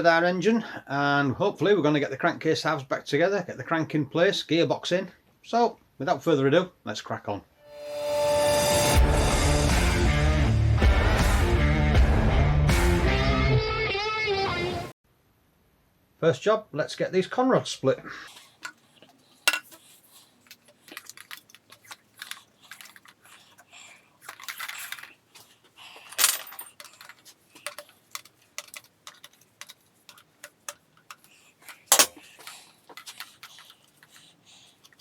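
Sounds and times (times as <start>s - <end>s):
metallic clinks of hand tools: 19.5s - 19.8s, 24.2s - 29.4s, 30.1s - 33.7s.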